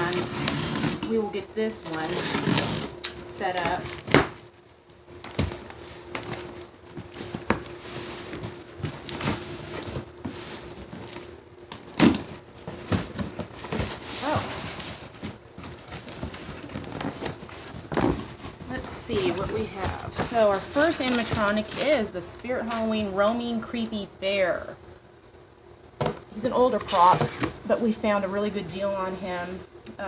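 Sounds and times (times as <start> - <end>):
cardboard packing rustling: 0.0 - 23.5, 26.0 - 27.8.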